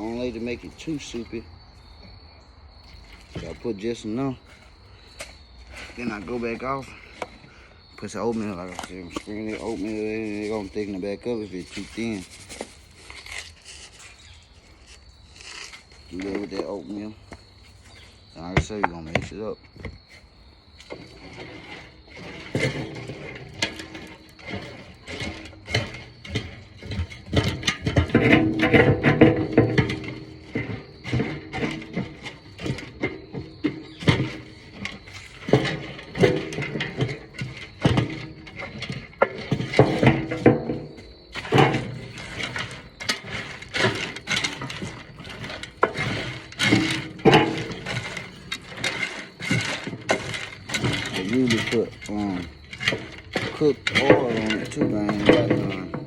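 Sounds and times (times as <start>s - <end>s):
dry dog food stirred by hand: 20.8s - 56.0s.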